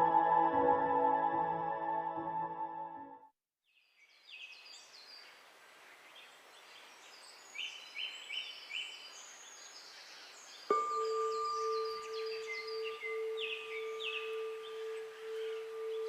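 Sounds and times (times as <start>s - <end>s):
background hiss: 4.0s - 16.0s
birds chirping: 4.1s - 16.0s
singing bowl ringing: 10.7s - 16.0s.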